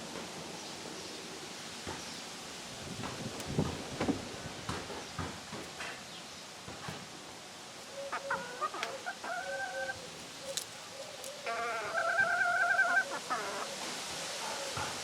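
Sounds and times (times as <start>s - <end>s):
rooster crowing: 11.4s - 13.8s.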